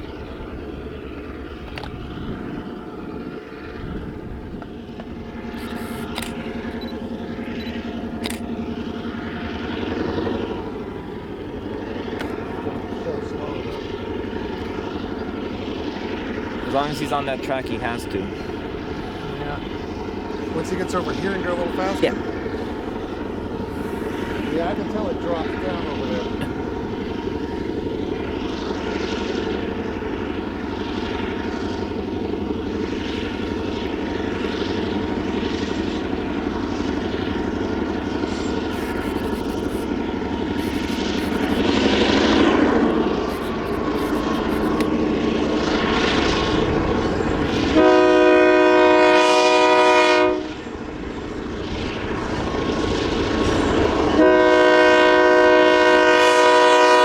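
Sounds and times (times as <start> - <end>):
locomotive engine rumble: 0.0 - 49.5
locomotive horn blasts: 47.7 - 50.6, 54.2 - 57.0.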